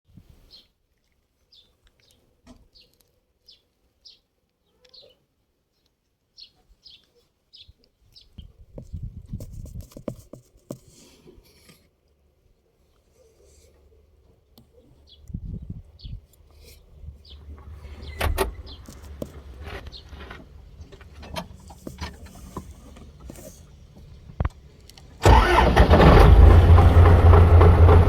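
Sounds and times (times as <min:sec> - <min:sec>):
bird chirping: 0:01.5 - 0:08.6, 0:14.6 - 0:16.2, 0:17.2 - 0:21.1
low rustling and clattering: 0:16.6 - 0:24.7.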